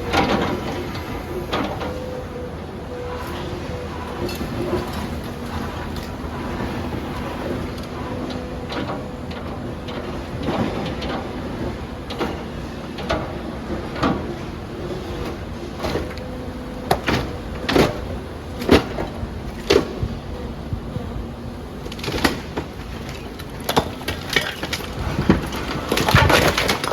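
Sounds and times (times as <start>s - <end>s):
excavator engine running: 0.0s - 26.9s
debris knocking and crashing: 21.9s - 26.9s.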